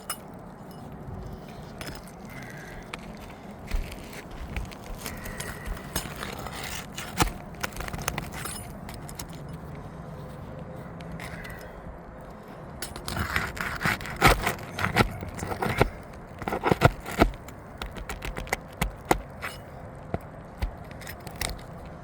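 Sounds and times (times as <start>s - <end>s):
metal tools scraping shingles: 0.0s - 2.7s, 5.0s - 9.6s, 12.8s - 19.8s.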